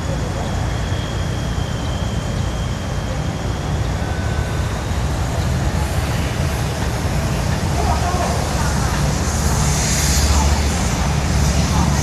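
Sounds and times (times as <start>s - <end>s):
diesel locomotive engine idling: 0.0s - 12.0s
faint high whine: 0.0s - 12.0s.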